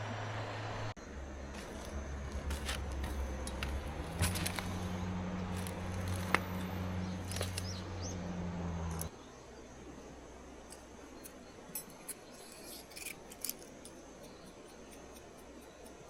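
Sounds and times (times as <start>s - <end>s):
steady low hum: 0.0s - 16.0s
campfire crackling and snapping: 1.6s - 7.8s.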